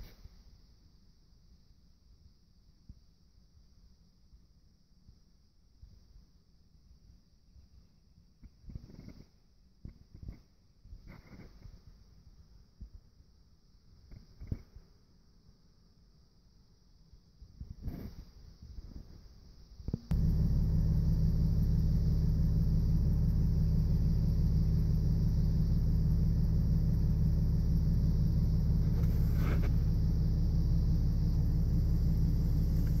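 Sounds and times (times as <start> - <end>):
vehicle engine rumbling: 20.0 - 33.0.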